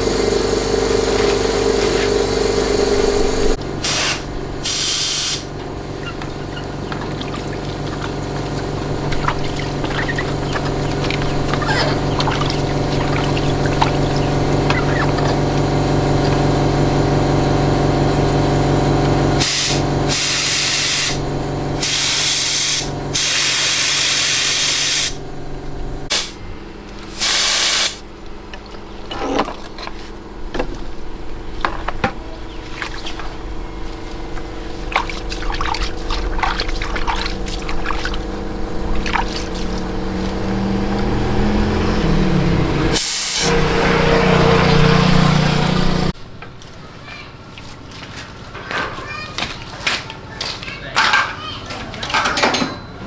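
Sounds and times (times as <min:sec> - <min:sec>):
steady hum: 0:00.0 - 0:46.2
hissing spray bursts: 0:03.8 - 0:05.5, 0:19.4 - 0:21.2, 0:21.8 - 0:25.2, 0:26.1 - 0:26.4, 0:27.1 - 0:28.0, 0:43.0 - 0:44.1.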